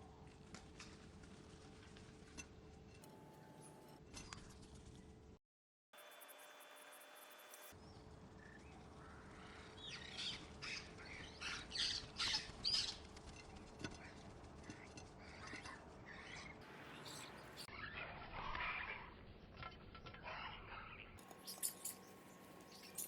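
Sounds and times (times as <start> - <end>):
birds chirping: 7.8 - 17.8, 20.9 - 23.0.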